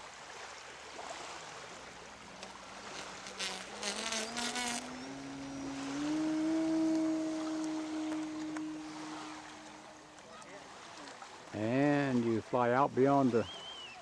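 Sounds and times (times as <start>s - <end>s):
model plane engine buzzing: 1.4s - 11.2s.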